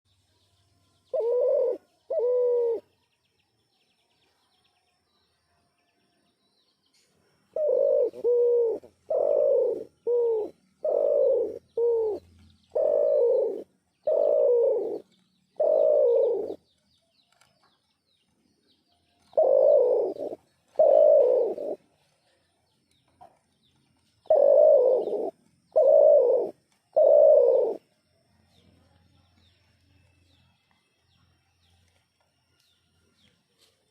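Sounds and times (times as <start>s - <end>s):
dove cooing: 1.1s - 2.9s, 7.5s - 16.6s, 19.3s - 21.9s, 24.2s - 27.9s.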